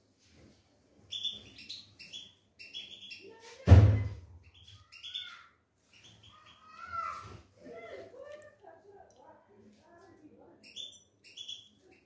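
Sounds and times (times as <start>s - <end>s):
small birds chirping: 1.0s - 8.5s, 9.9s - 12.0s
loud thump: 3.7s - 4.2s.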